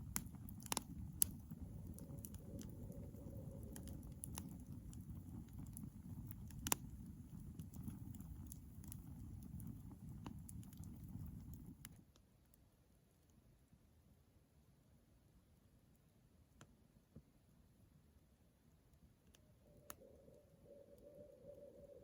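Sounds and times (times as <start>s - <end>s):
campfire crackling and popping: 0.0s - 12.1s.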